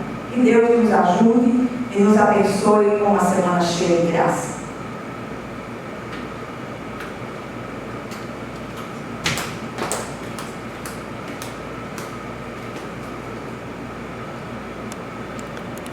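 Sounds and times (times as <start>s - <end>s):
background hiss and hum: 0.0s - 15.9s.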